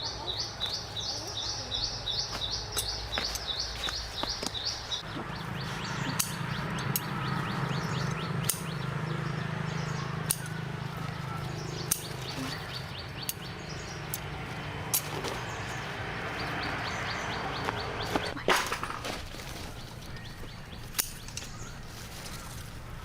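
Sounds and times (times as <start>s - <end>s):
birds chirping: 0.0s - 23.0s
steady low hum: 0.0s - 23.0s
sharp clicks: 6.0s - 9.0s, 10.2s - 10.7s, 11.8s - 14.3s.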